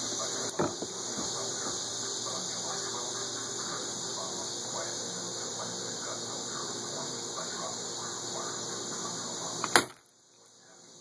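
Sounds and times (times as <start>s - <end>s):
background hiss: 0.0s - 11.0s
bb gun shot: 9.6s - 10.0s.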